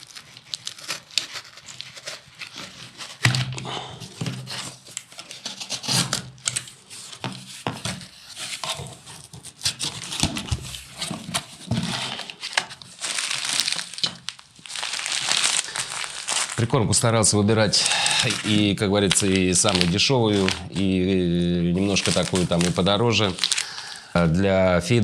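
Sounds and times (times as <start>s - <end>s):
plastic packaging crinkling: 0.0s - 25.0s.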